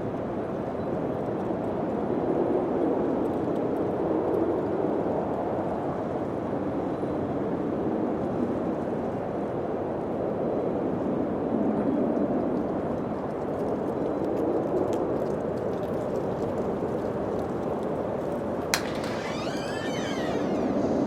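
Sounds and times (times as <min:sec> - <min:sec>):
rushing wind: 0:18.7 - 0:21.0.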